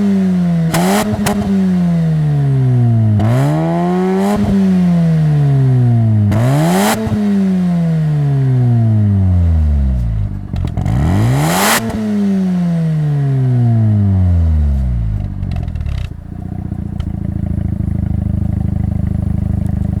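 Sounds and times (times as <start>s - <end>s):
exhaust crackles: 0.0s - 20.0s
rotary engine revving: 3.2s - 5.4s, 6.3s - 8.0s, 10.5s - 13.5s.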